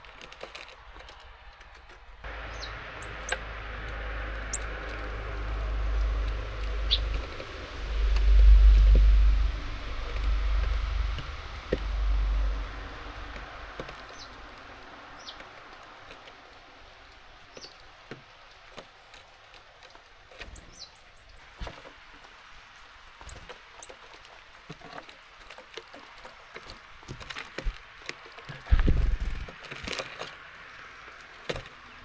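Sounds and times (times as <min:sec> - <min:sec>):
small birds chirping: 0:00.0 - 0:21.7, 0:23.2 - 0:24.1
low rumble: 0:02.2 - 0:16.0.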